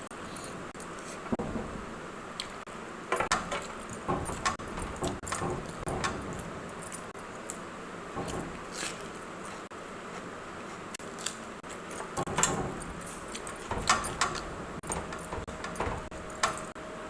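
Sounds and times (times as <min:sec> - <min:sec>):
metallic clinks and clicks: 0:03.1 - 0:09.0, 0:11.8 - 0:16.8.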